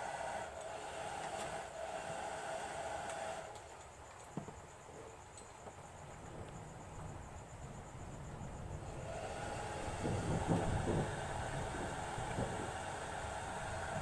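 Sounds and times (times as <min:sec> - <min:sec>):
hair dryer whirring: 0:00.0 - 0:03.6, 0:08.8 - 0:14.0
hum: 0:05.9 - 0:14.0.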